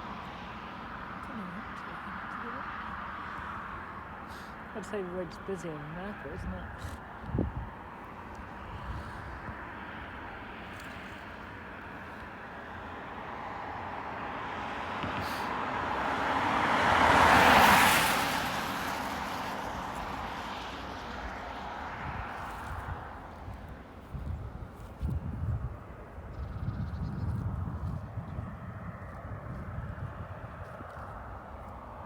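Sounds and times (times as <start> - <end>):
vehicle passing by: 1.2 - 25.6.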